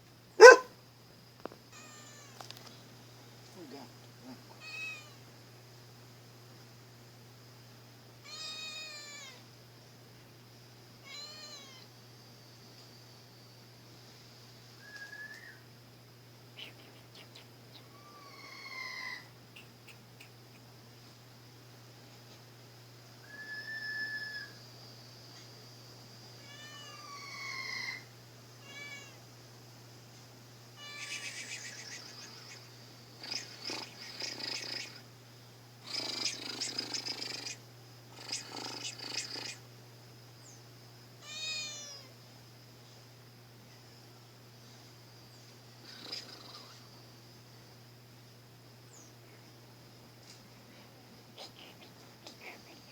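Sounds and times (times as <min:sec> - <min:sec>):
faint steady hum: 0:00.0 - 0:52.9
cat meowing: 0:00.4 - 0:00.7, 0:11.1 - 0:11.8, 0:26.4 - 0:27.1, 0:30.8 - 0:31.2, 0:41.2 - 0:42.1.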